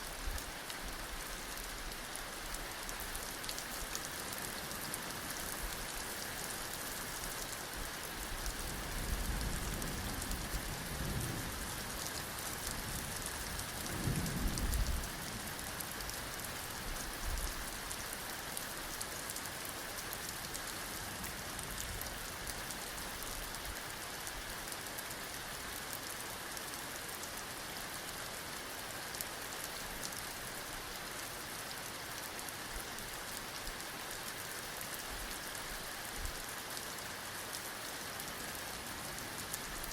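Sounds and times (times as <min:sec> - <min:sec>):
heavy rain falling: 0:00.0 - 0:39.9
low rumbles of thunder: 0:12.7 - 0:15.5.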